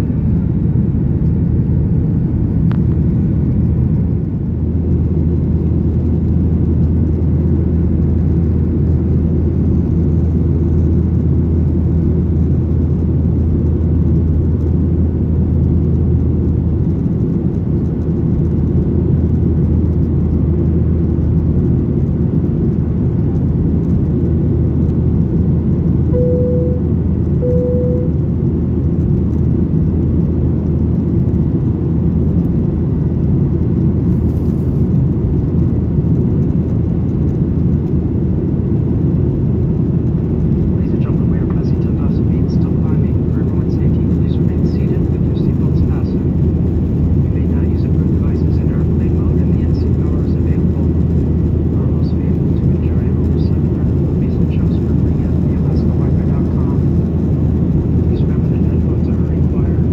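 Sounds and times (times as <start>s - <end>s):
airliner engine rumble and whir: 0.0s - 59.9s
low hum: 23.3s - 29.4s
short cabin chime tones: 26.2s - 28.2s.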